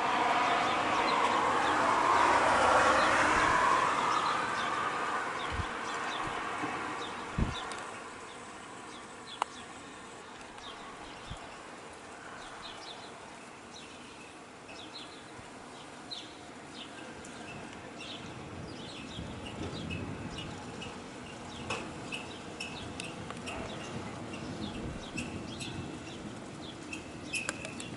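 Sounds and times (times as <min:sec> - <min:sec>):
faint outdoor hiss: 0:00.0 - 0:27.9
small birds chirping: 0:12.3 - 0:27.9.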